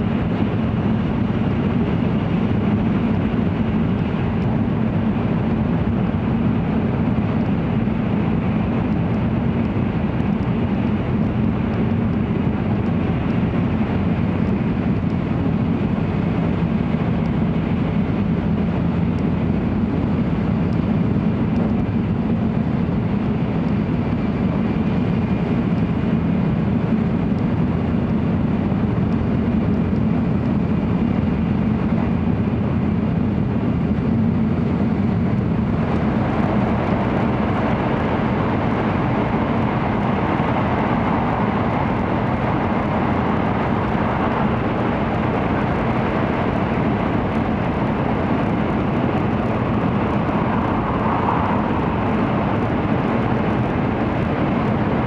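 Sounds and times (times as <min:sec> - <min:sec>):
train cabin low rumble: 0:00.0 - 0:55.0.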